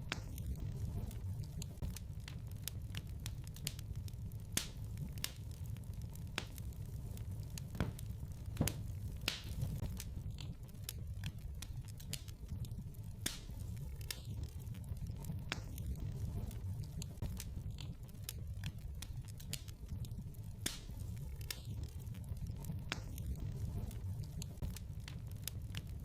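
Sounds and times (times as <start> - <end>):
low rumble: 0.0 - 26.0
wood fire crackling: 0.0 - 26.0.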